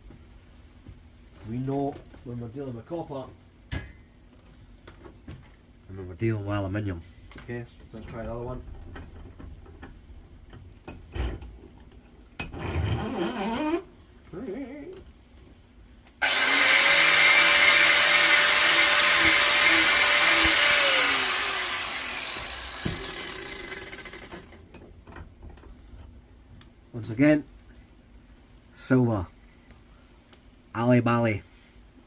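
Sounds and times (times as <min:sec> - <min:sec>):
angle grinder grinding metal: 0:16.2 - 0:24.6.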